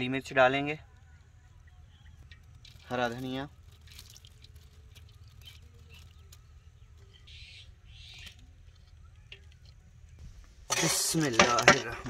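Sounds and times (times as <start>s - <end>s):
low outdoor rumble: 0.0s - 12.0s
faint bird chirps: 0.8s - 2.9s, 5.0s - 10.2s.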